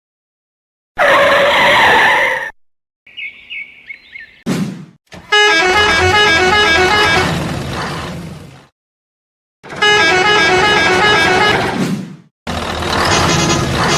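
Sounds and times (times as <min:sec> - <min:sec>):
blaring horn-like tone: 0:05.2 - 0:07.4, 0:09.7 - 0:11.7.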